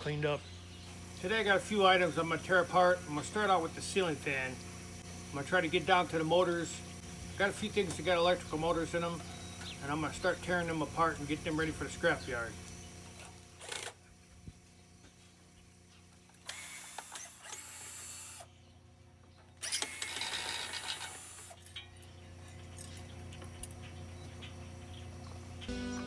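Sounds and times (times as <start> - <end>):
power tool bursts: 0.6 - 14.1, 16.3 - 18.5, 19.6 - 21.7.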